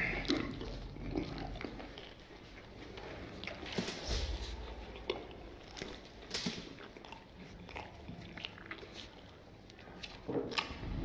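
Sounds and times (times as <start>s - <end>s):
wet mouth clicks and smacks: 5.0s - 11.0s.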